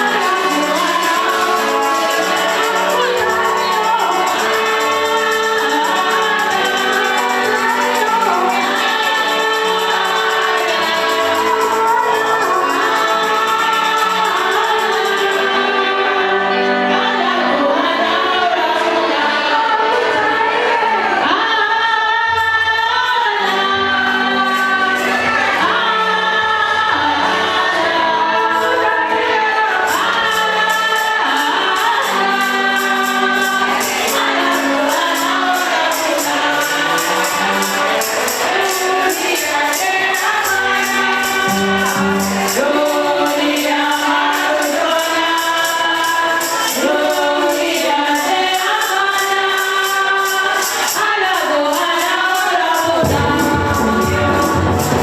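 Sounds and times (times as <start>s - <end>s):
tambourine beat: 0.0s - 16.6s, 27.7s - 55.0s
group singing a gospel hymn: 0.0s - 55.0s.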